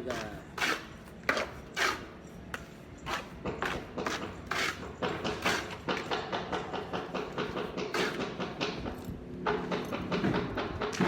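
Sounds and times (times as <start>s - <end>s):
trowel scraping plaster on wall: 0.0s - 8.6s.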